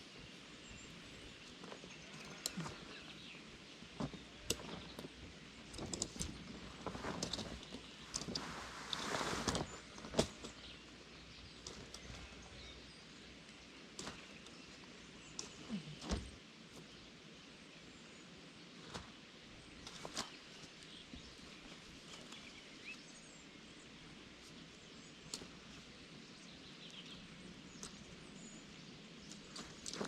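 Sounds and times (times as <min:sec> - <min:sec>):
faint steady hiss: 0:00.0 - 0:30.0
faint bird chirps: 0:07.1 - 0:23.9.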